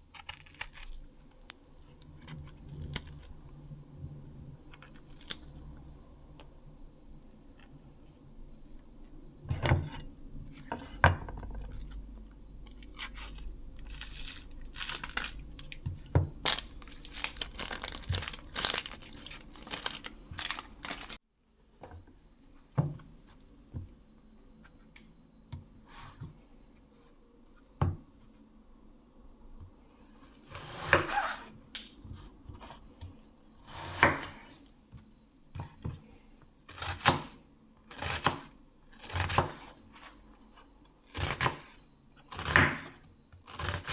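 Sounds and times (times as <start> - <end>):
wrapping tearing and crinkling: 0.0 - 3.4, 12.6 - 21.2.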